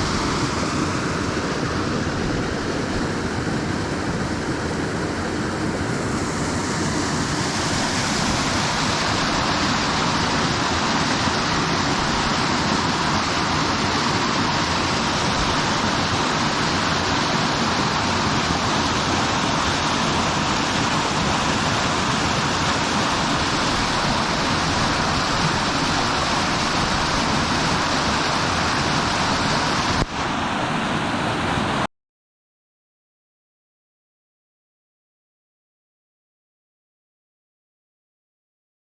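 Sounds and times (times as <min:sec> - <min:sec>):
waterfall rushing: 0:00.0 - 0:03.7, 0:05.6 - 0:31.9.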